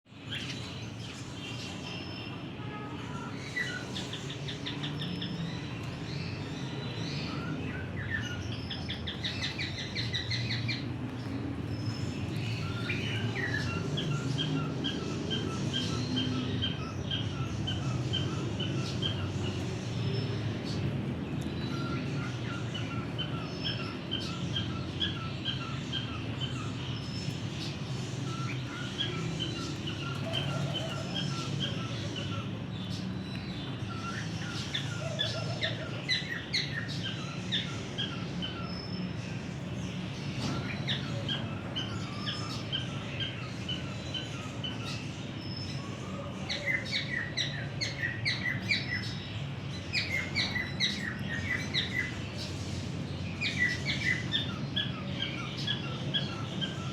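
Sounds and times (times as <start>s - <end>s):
birds chirping and tweeting: 0.1s - 56.9s.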